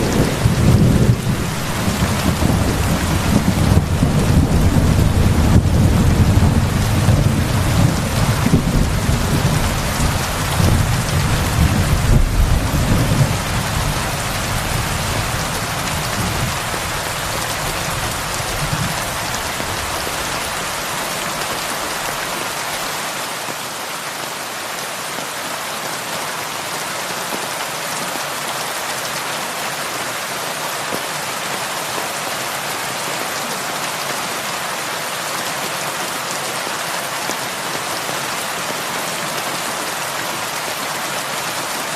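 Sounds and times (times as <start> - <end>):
thunder rumbling: 0.0 - 20.2
heavy rain falling: 0.0 - 41.9.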